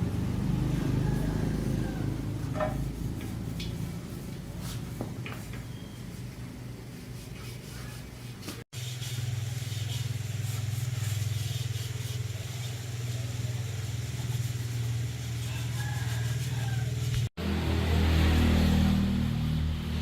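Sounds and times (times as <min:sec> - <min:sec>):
engine running steadily: 0:00.0 - 0:04.4.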